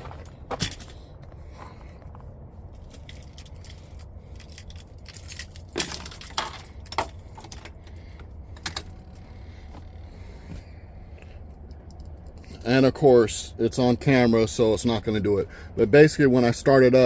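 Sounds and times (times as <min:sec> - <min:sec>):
steady low hum: 0:00.0 - 0:17.0
sharp clicks and metallic clinks: 0:11.5 - 0:12.7.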